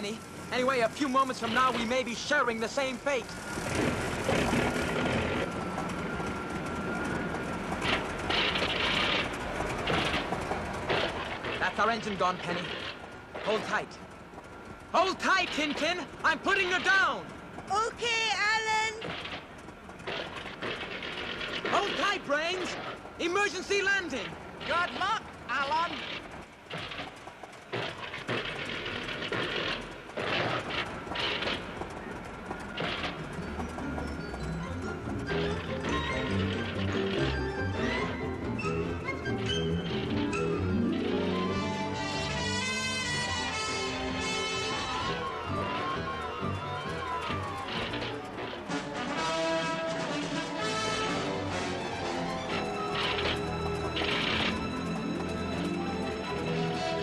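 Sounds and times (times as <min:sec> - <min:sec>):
biplane engine droning: 0:00.0 - 0:57.0
thin steady whine: 0:00.0 - 0:57.0
plane rattling crash over ground: 0:07.8 - 0:13.6.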